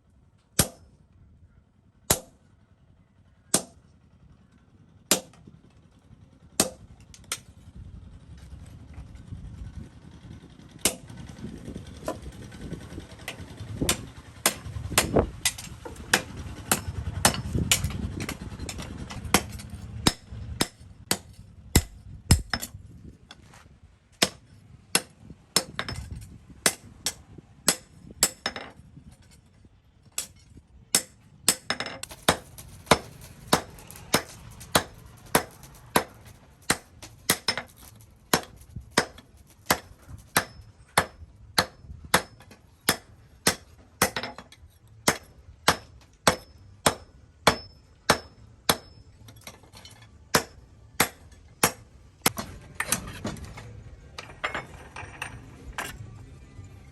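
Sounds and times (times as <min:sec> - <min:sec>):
hammer striking steel on anvil: 0:30.2 - 0:44.4, 0:45.0 - 0:49.5, 0:50.3 - 0:52.9
low rumble: 0:32.0 - 0:40.6.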